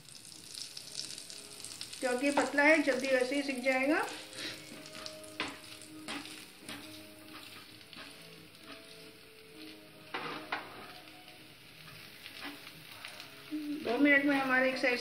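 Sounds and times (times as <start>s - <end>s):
batter sizzling in oil: 0.0s - 15.0s
wooden spatula scraping a pan: 4.1s - 11.1s, 11.8s - 12.8s.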